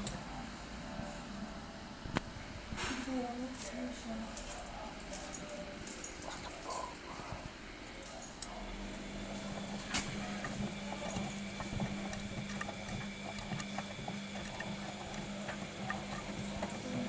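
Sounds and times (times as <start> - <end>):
washing machine motor humming: 0.0 - 17.0
water and laundry sloshing: 8.9 - 17.0.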